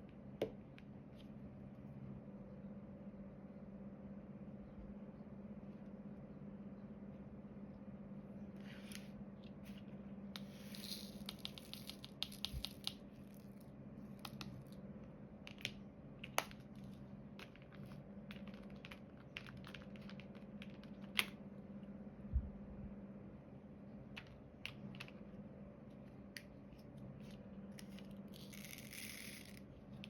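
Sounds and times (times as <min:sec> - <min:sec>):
steady low hum: 0:00.0 - 0:30.0
small plastic clicks and rattles: 0:17.4 - 0:21.3.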